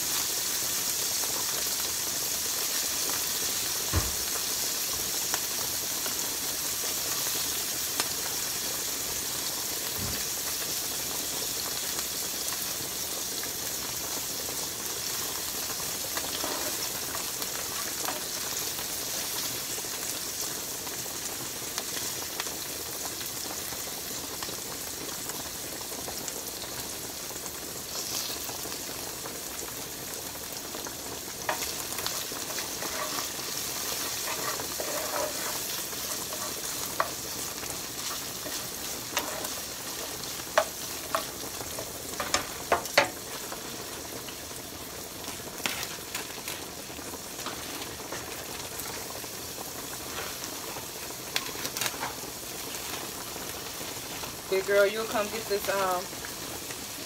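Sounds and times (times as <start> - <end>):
vegetables sizzling in a frying pan: 0.0 - 57.0
plastic spoon scraping a pan: 16.2 - 17.1, 31.5 - 41.3.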